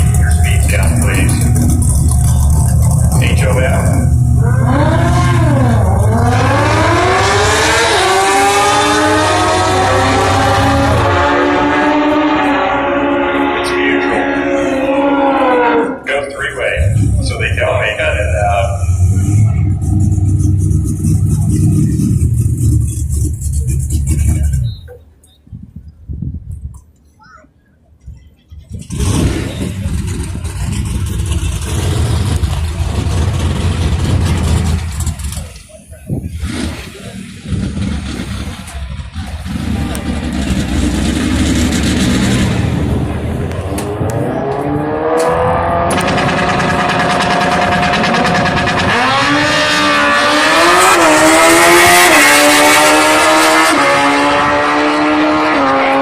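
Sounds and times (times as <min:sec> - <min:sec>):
motorcycle engine at high revs: 0:00.0 - 0:12.6, 0:36.4 - 0:56.0.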